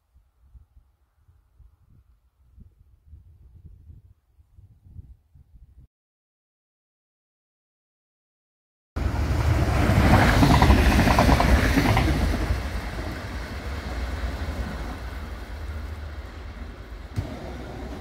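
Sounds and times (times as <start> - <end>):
wind buffeting microphone: 0.4 - 5.9
express train passing at speed: 9.0 - 18.0.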